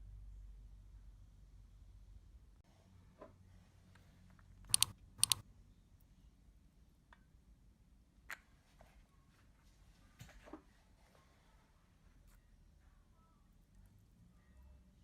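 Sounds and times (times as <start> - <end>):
sharp clicks and taps: 4.7 - 5.4.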